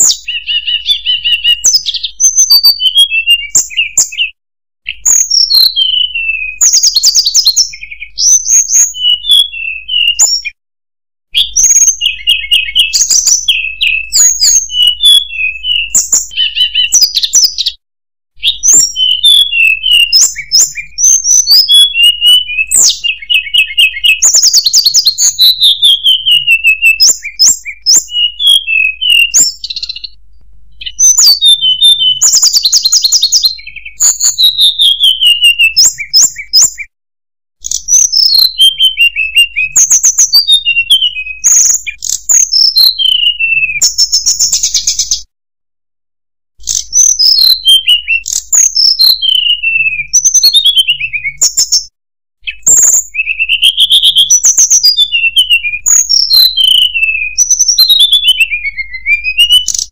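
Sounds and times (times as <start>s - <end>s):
bird singing whistles and trills: 0.0s - 10.6s, 11.3s - 17.8s, 18.4s - 36.9s, 37.6s - 45.3s, 46.6s - 59.9s.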